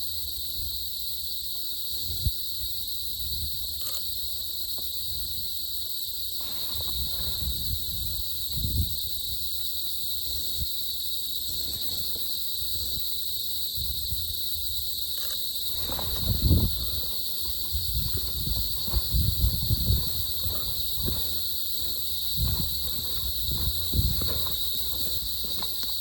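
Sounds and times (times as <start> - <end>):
insect chorus buzzing: 0.0 - 26.0
rustles of movement: 15.3 - 26.0.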